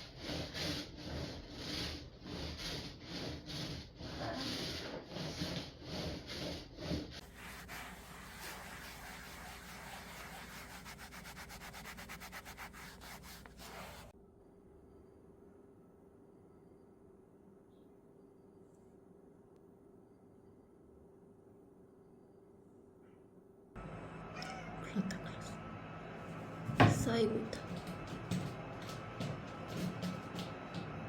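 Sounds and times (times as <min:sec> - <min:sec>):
rhythmic scrubbing strokes: 0:02.3 - 0:14.1.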